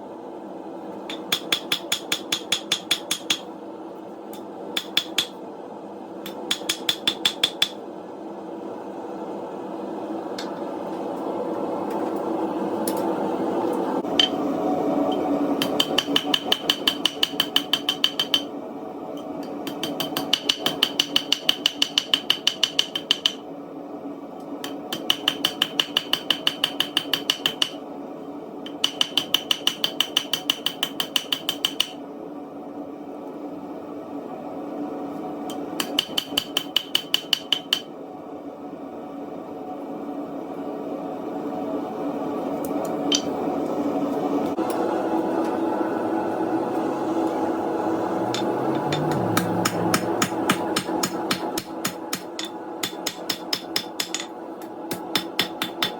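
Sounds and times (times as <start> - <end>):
hammer striking hot steel: 6.2 - 7.8, 48.3 - 54.3, 54.9 - 55.9.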